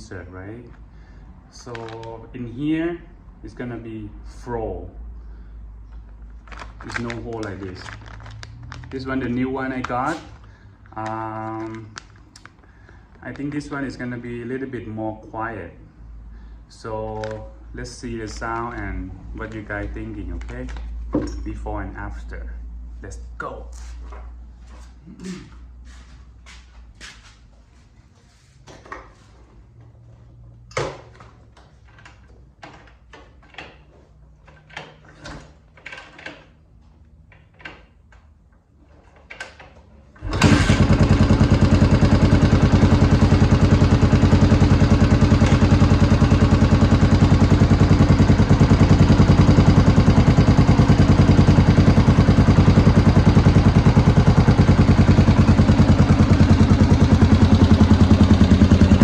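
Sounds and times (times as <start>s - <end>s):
motorcycle engine idling: 40.3s - 59.0s.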